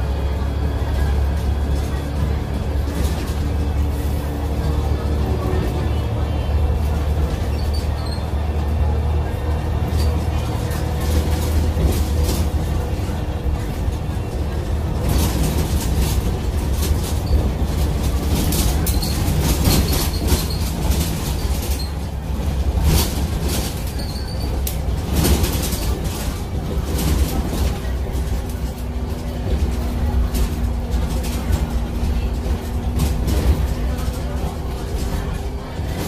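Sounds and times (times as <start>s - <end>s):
low vehicle rumble: 0.0s - 36.0s
rattles and clicks: 9.8s - 36.0s.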